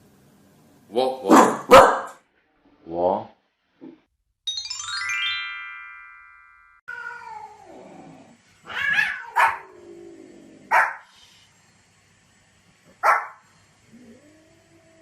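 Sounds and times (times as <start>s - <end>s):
dog barking: 1.2s - 2.2s, 9.0s - 9.7s, 10.7s - 11.1s, 13.0s - 13.4s
chime tone: 4.5s - 6.9s.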